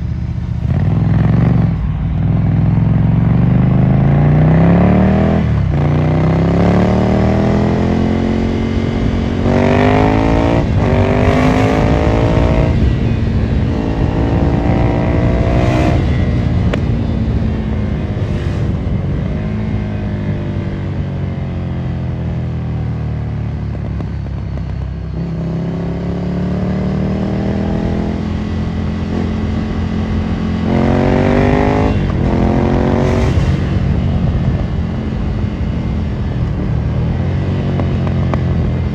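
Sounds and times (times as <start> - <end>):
motorcycle engine accelerating through gears: 0.0 - 38.9.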